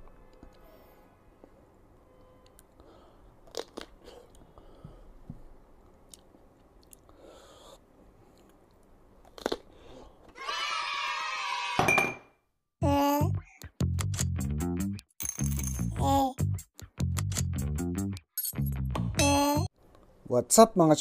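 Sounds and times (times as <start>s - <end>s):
crisp bites and chewing: 3.4s - 4.0s, 9.2s - 9.7s.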